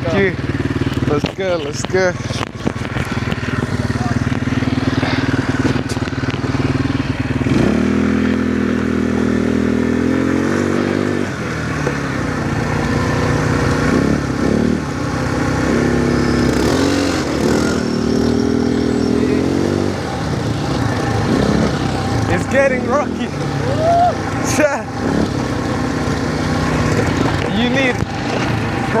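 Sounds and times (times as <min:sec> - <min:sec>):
quad bike engine revving: 0:00.0 - 0:29.0.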